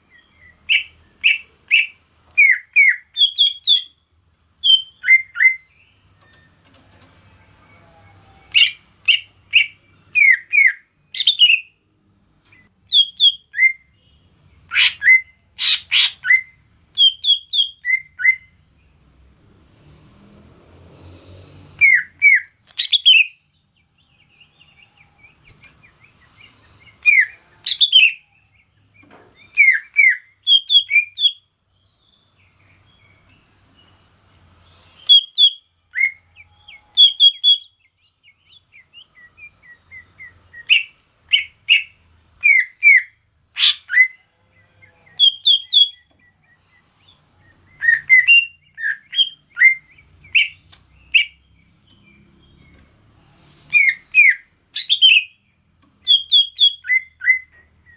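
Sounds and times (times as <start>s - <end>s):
bird whistled chirps: 0.1s - 4.0s, 4.6s - 5.7s, 8.4s - 11.7s, 12.9s - 13.9s, 14.7s - 18.6s, 21.8s - 23.4s, 26.3s - 28.3s, 29.0s - 31.4s, 34.9s - 36.2s, 36.8s - 44.2s, 45.2s - 46.6s, 47.4s - 51.4s, 53.7s - 55.4s, 56.0s - 57.9s.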